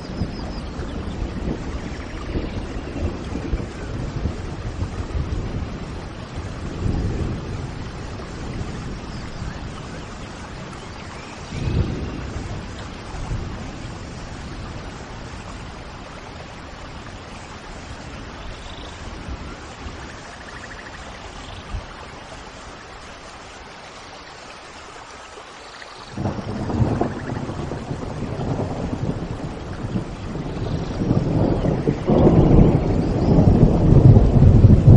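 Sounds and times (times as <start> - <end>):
thunder rolling: 0.0 - 15.9, 26.2 - 34.9
steady rain: 0.0 - 34.9.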